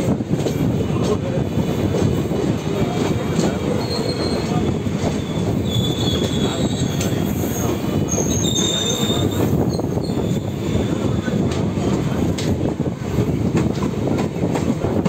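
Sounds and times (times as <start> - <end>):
rumble of train wheels on rails: 0.0 - 15.0
high wheel squeals: 3.7 - 11.2.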